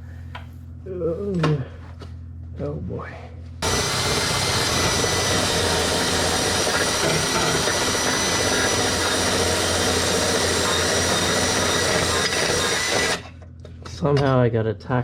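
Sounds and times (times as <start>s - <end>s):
power tool grinding with whine: 3.6s - 13.4s.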